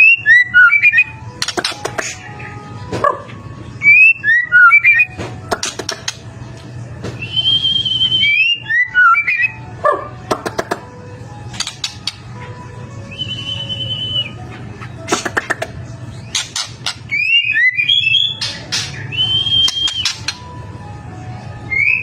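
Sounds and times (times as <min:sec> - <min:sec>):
bird singing whistled phrases: 0:03.8 - 0:05.2, 0:07.2 - 0:09.6, 0:13.1 - 0:14.4, 0:17.1 - 0:20.4, 0:21.7 - 0:22.0.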